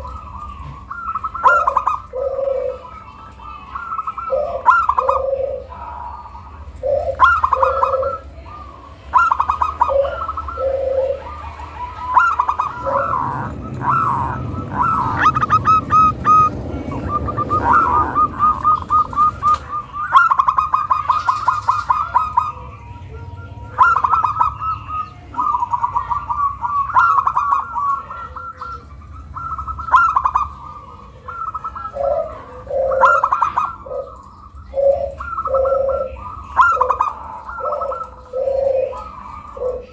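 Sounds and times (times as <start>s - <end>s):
dove cooing: 0.0s - 39.9s
low rushing noise: 11.4s - 20.0s.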